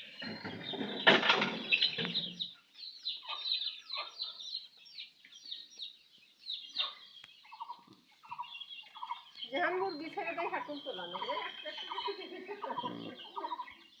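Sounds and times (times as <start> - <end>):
baby chicks peeping: 0.0 - 14.0
hens clucking: 0.0 - 14.0.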